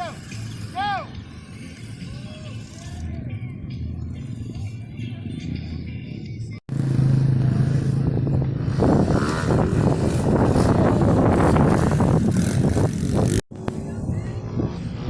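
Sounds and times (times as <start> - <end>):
pit bike engine running: 6.7 - 15.0.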